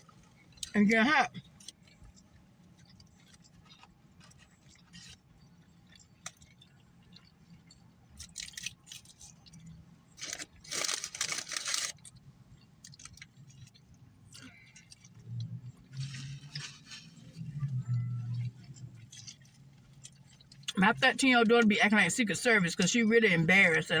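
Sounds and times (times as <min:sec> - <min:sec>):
person chewing food: 0:01.4 - 0:20.8
wrapper rustling: 0:10.2 - 0:12.0, 0:16.0 - 0:17.4.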